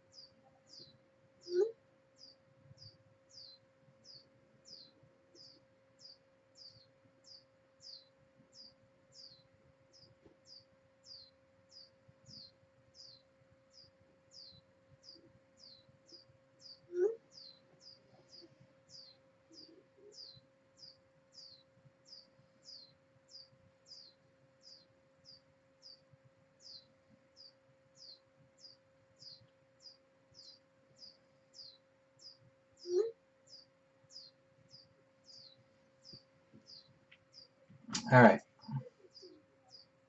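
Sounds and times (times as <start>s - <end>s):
low steady hum: 0.0s - 40.0s
small bird chirping: 0.0s - 40.0s.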